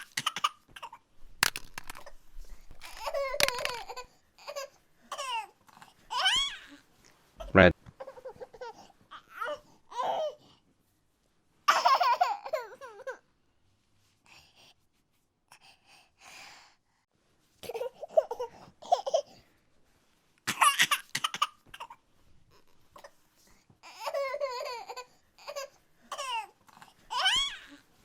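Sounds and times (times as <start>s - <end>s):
baby laughing and babbling: 2.8s - 6.7s, 7.4s - 10.4s, 11.7s - 13.2s.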